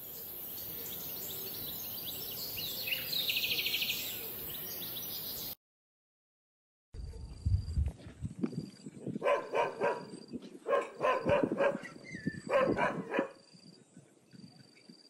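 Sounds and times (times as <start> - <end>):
dog barking: 9.2 - 13.4.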